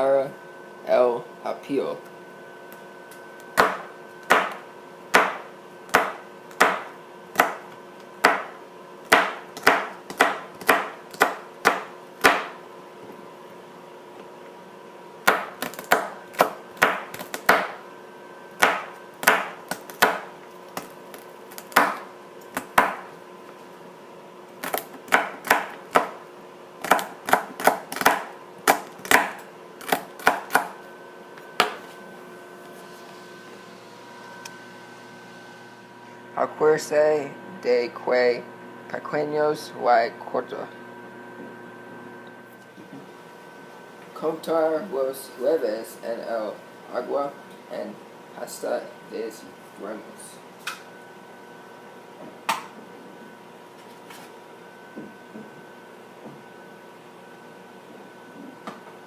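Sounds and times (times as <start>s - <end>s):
knife chopping on cutting board: 3.6s - 12.6s, 15.2s - 17.8s, 18.6s - 20.9s, 21.6s - 23.1s, 24.6s - 26.2s, 26.8s - 30.8s.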